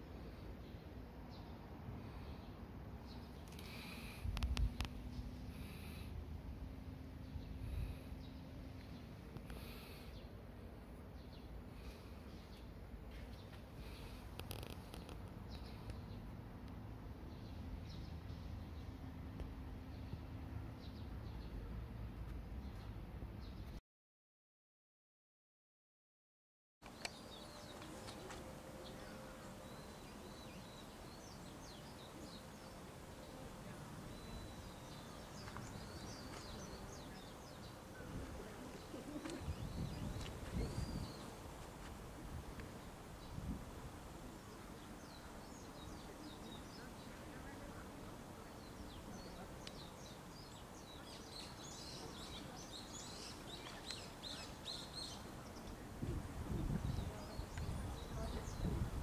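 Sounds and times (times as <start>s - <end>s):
small birds chirping: 0.0s - 16.3s, 26.8s - 59.0s
faint outdoor background: 0.0s - 23.8s, 26.8s - 59.0s.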